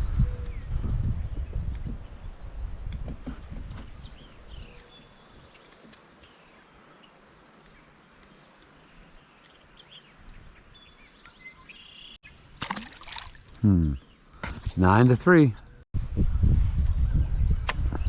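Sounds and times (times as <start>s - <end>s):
songbird trill: 0.0s - 12.6s
bird chirps: 3.4s - 12.6s.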